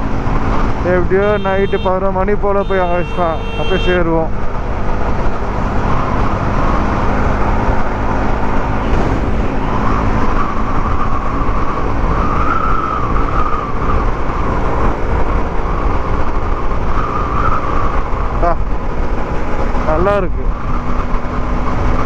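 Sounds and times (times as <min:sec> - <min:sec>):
motorcycle engine and road noise: 0:00.0 - 0:22.0.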